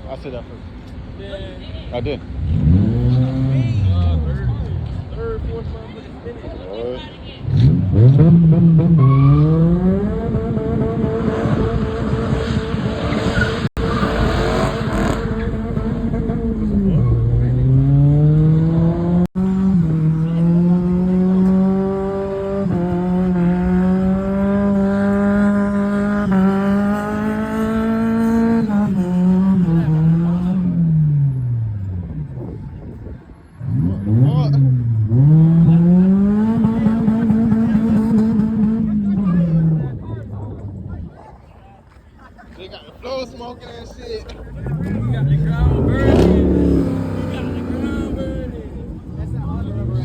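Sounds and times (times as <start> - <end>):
car engine revving high: 2.4 - 4.6, 7.4 - 32.4, 33.6 - 39.8, 44.6 - 50.0.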